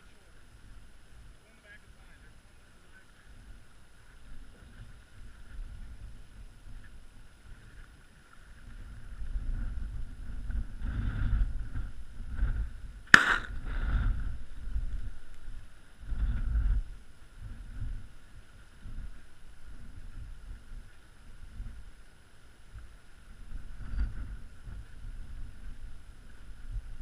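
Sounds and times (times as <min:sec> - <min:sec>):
wind rumbling on microphone: 0:00.0 - 0:27.0
shotgun shot: 0:13.1 - 0:13.7.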